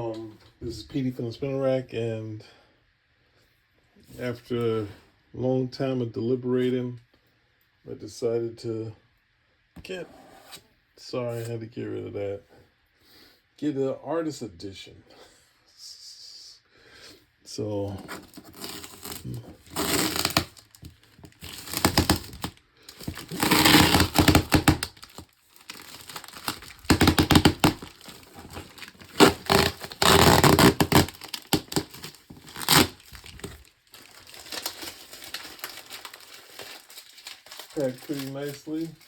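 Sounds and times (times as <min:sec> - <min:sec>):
packaging tearing and crumpling: 0:18.0 - 0:39.0.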